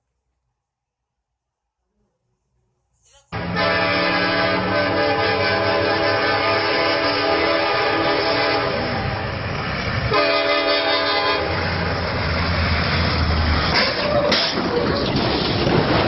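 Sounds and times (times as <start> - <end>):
train rumbling past: 3.3 - 16.0
locomotive air horn: 3.4 - 9.4, 10.1 - 12.0, 13.7 - 14.6.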